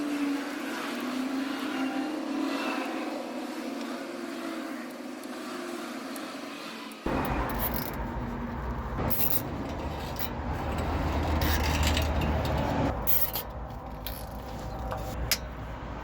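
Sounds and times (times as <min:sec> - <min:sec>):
truck diesel engine rumbling: 0:07.1 - 0:16.0.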